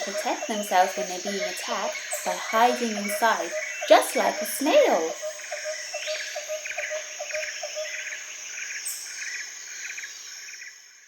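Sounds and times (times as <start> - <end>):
insects trilling in rapid pulses: 0.0 - 11.0.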